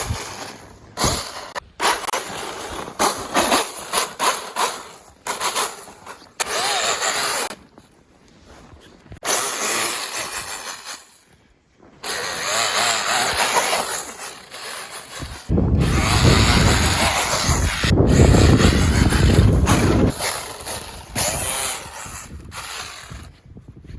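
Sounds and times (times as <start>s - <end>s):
electric motor whirring: 3.1s - 7.6s, 9.2s - 11.1s, 12.0s - 23.3s.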